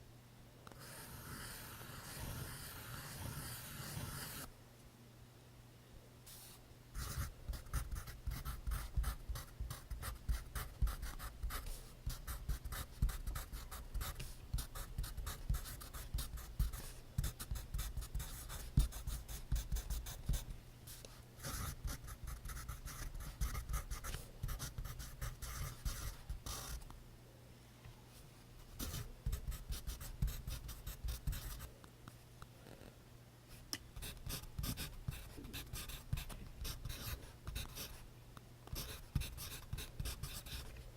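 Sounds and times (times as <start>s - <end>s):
pencil scratching on paper: 0.8s - 4.5s, 7.0s - 20.4s, 21.4s - 26.8s, 28.8s - 31.7s, 34.0s - 38.0s, 38.7s - 40.7s.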